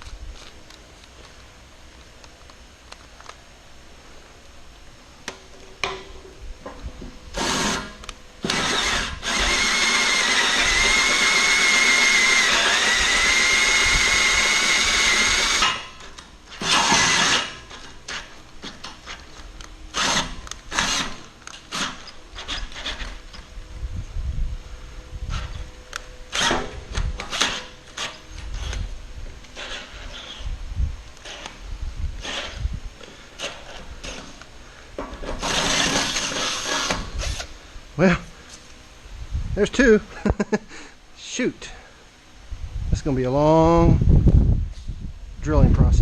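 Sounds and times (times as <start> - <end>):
electric drill drilling steel: 7.3 - 19.2, 19.9 - 23.4, 26.3 - 28.9, 29.5 - 30.5, 35.2 - 37.5.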